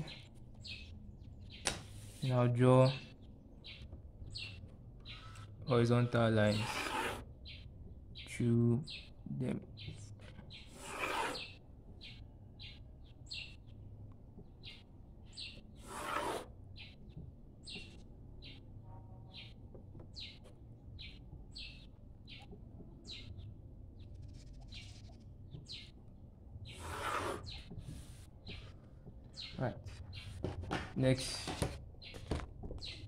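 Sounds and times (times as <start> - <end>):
small bird chirping: 0.0 - 1.7, 2.9 - 18.7, 19.3 - 30.4, 32.0 - 33.0
pencil and ruler on paper: 5.1 - 7.3, 10.2 - 11.6, 15.5 - 17.2, 26.7 - 28.7.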